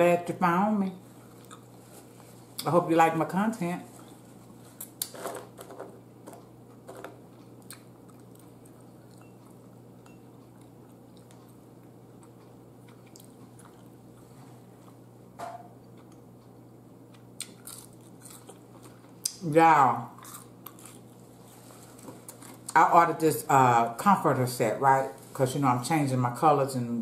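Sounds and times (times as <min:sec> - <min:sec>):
steady low hum: 0:00.0 - 0:27.0
person chewing and lip smacks: 0:01.4 - 0:01.8, 0:06.4 - 0:15.0, 0:15.8 - 0:16.5, 0:17.1 - 0:19.4.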